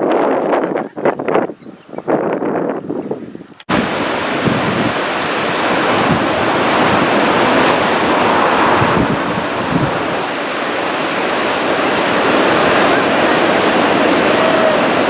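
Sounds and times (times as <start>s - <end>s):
wind noise on microphone: 0.0s - 15.0s
whitewater rushing: 3.7s - 15.0s.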